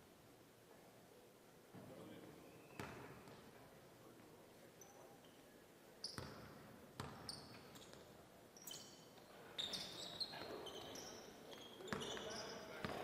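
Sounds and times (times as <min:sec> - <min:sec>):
sneaker squeaks: 0:02.6 - 0:03.4, 0:06.0 - 0:13.0
basketball bouncing on gym floor: 0:06.2 - 0:07.3.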